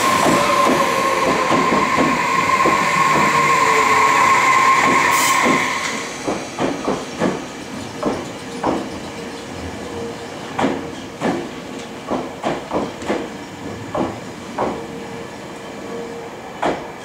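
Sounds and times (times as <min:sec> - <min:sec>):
high wheel squeal: 0:00.0 - 0:06.2
air hiss: 0:00.0 - 0:06.8
electric train rolling: 0:00.0 - 0:17.0.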